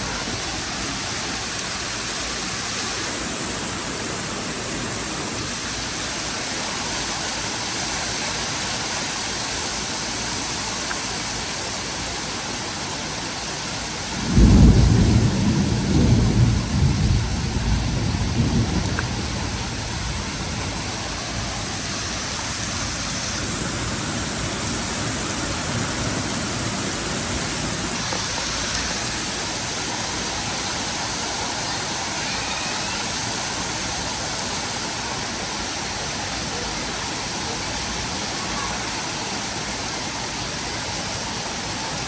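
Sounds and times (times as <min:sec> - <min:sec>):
heavy rain hiss: 0:00.0 - 0:42.0
thunder rumble: 0:14.1 - 0:29.7.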